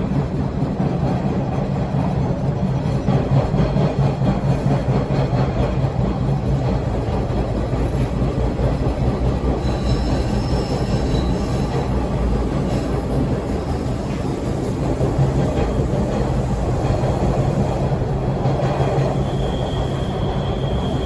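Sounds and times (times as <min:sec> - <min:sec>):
subway car rumbling and rattling: 0:00.0 - 0:21.0
faint high squeal: 0:09.6 - 0:11.7, 0:19.0 - 0:21.0.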